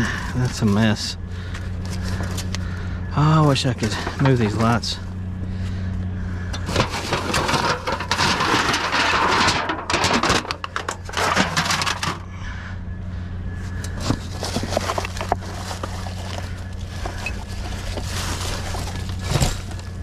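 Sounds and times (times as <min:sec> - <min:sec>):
steady low hum: 0:00.0 - 0:20.0
trash rustling and clattering: 0:03.6 - 0:05.0, 0:06.5 - 0:12.3, 0:13.7 - 0:20.0.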